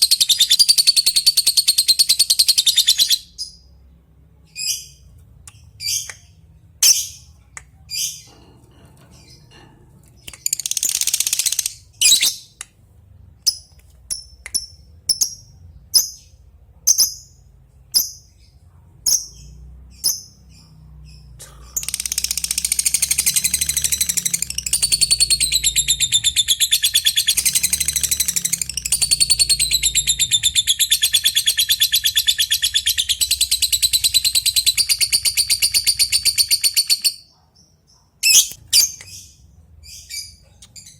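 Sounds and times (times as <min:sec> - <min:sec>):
lovebird chirps and chattering trill: 0:10.1 - 0:12.5, 0:19.0 - 0:40.9.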